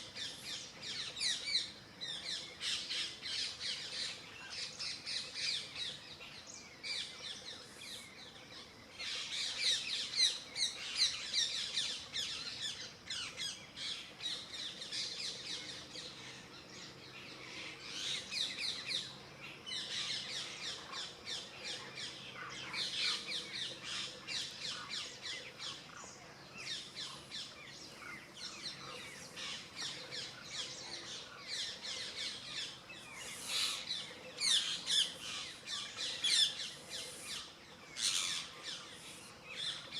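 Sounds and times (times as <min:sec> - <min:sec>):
birds chirping and squawking: 0:09.0 - 0:39.9.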